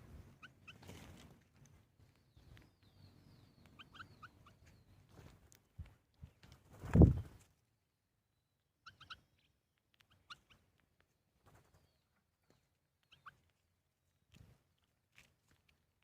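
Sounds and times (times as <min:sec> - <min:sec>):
faint bird chirps: 0:02.0 - 0:05.4, 0:08.2 - 0:10.8, 0:11.5 - 0:13.6.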